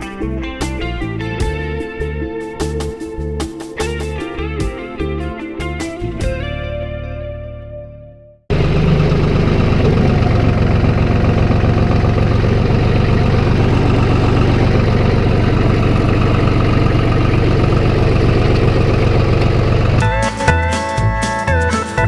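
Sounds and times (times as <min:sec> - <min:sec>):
vehicle engine running steadily: 0:08.5 - 0:20.0.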